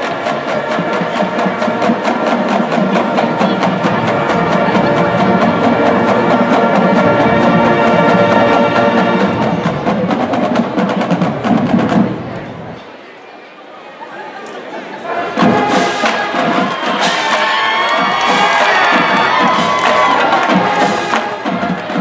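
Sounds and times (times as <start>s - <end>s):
brass and wind chords: 0.0s - 10.4s, 15.1s - 17.5s
drumline beat: 0.0s - 12.8s, 15.3s - 22.0s.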